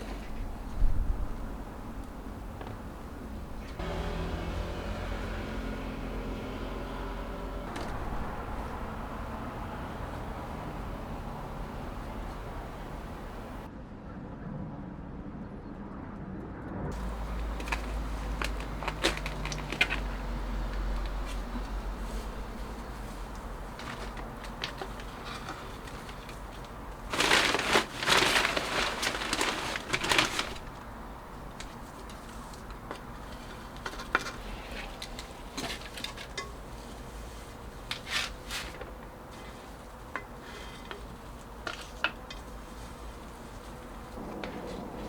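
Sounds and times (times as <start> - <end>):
rustling clatter: 17.0 - 45.0.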